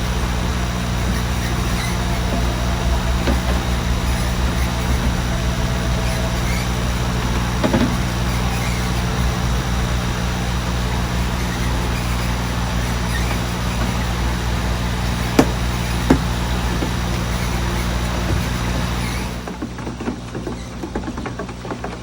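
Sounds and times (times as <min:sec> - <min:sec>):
low machine hum: 0:00.0 - 0:22.0
sharp knocks: 0:15.3 - 0:18.6.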